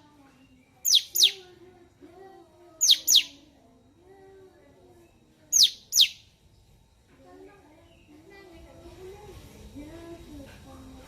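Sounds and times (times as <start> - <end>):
bird whistling: 0.8 - 1.4, 2.8 - 3.4, 5.6 - 6.3.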